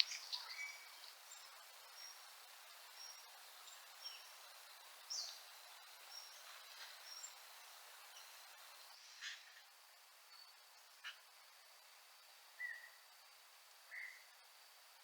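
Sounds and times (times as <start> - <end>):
bird chirps: 0.0 - 2.3, 13.9 - 14.3
background hiss: 0.0 - 15.0.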